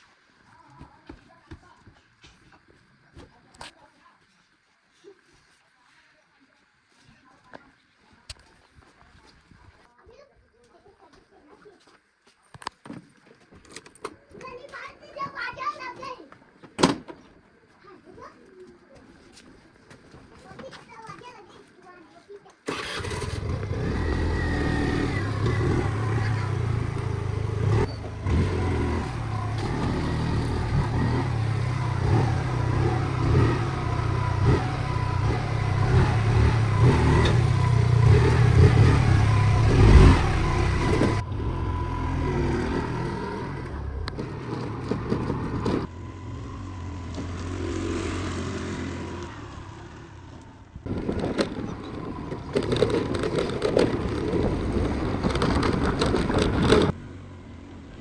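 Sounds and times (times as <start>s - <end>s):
diesel engine under load: 22.7s - 58.0s
scraping and clatter: 24.9s - 48.4s, 50.8s - 57.0s.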